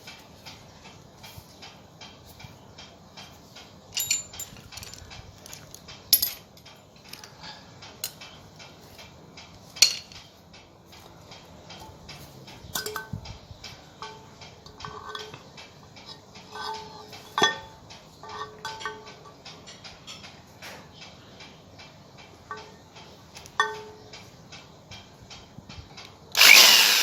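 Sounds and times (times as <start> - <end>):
metal parts clinking: 4.0 - 7.3.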